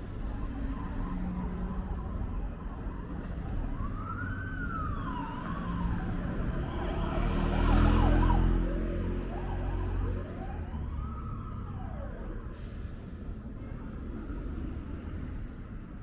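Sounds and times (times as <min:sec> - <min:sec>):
street traffic rumble: 0:00.0 - 0:16.0
siren wailing: 0:03.8 - 0:12.5
vehicle passing close: 0:06.2 - 0:12.2.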